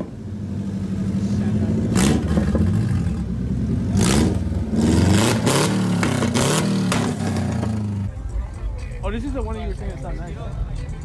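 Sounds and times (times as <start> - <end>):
car engine revving hard: 0.5 - 7.9
exhaust cracks: 1.8 - 8.0.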